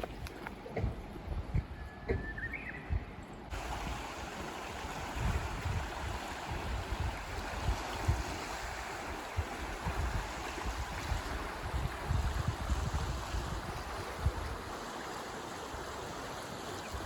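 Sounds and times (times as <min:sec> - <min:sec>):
wind buffeting microphone: 0:00.0 - 0:14.8
stream water rushing: 0:03.5 - 0:17.0.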